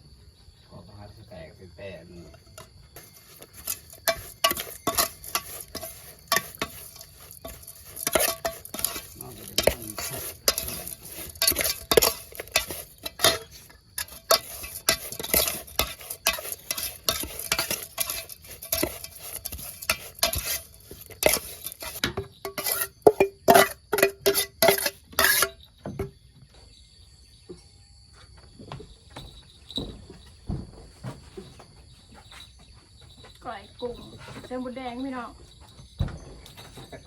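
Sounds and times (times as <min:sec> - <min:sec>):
spoon stirring in bowl: 0:02.4 - 0:25.6.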